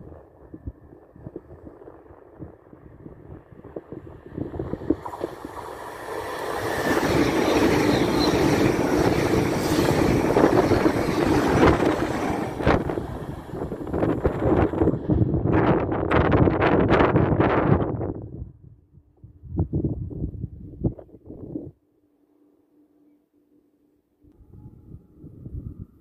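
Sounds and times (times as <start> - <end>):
electric train passing at speed: 0.0 - 18.4
wind gusts buffeting microphone: 0.0 - 21.7.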